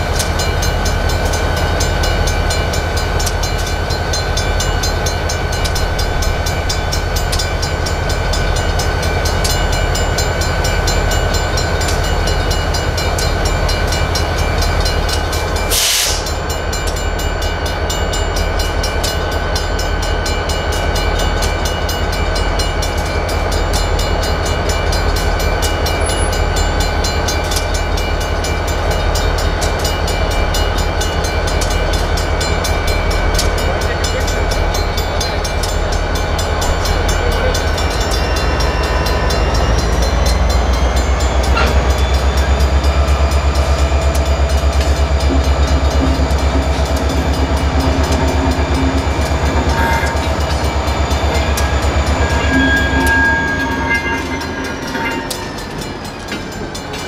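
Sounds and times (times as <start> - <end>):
crossing signal bell ringing: 0.0 - 57.0
train rumble: 0.0 - 57.0
short hiss: 15.7 - 16.3.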